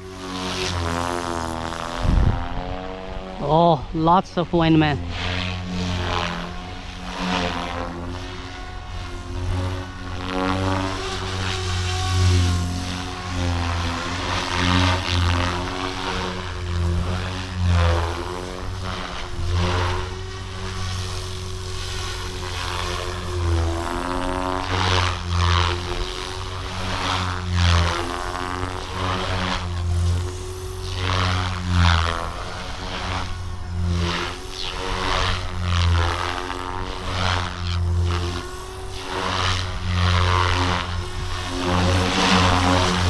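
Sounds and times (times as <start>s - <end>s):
rc helicopter motor whine: 0.0s - 43.0s.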